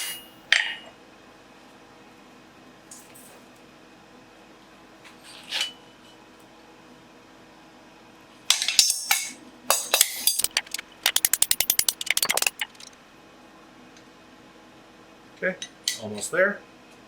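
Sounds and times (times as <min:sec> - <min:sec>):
rapid light hammer strikes: 0:09.7 - 0:12.9.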